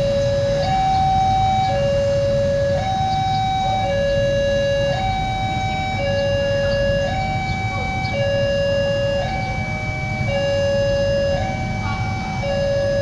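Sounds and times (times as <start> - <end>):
electronic two-tone warning signal: 0.0 - 13.0.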